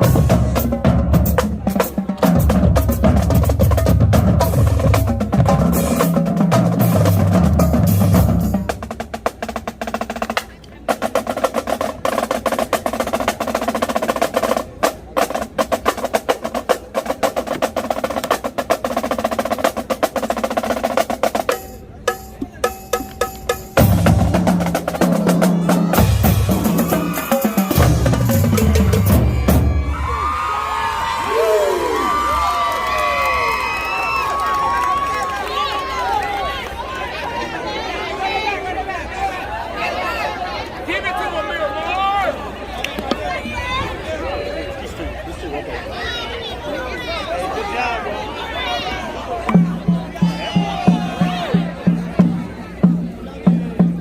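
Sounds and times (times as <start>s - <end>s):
snare drums: 0.0s - 29.9s
tenor drums: 0.0s - 30.2s, 49.4s - 54.0s.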